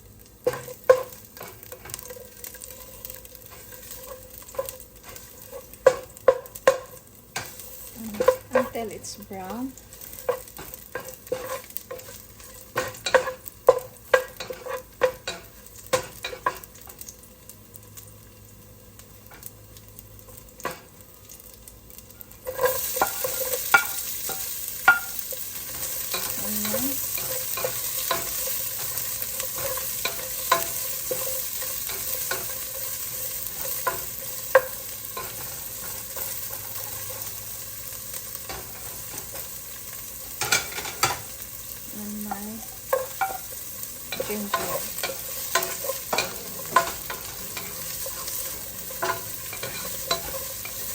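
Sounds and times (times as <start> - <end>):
garlic sizzling in oil: 0.0 - 50.9
utensil scraping a pan: 9.9 - 16.7, 44.1 - 50.9.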